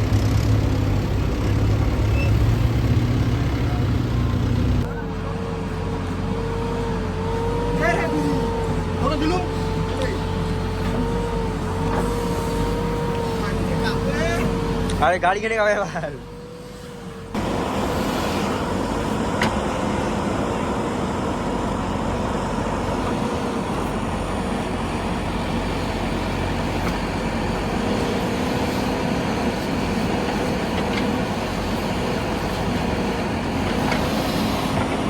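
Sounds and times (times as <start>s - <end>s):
tractor diesel engine droning: 0.0s - 35.0s.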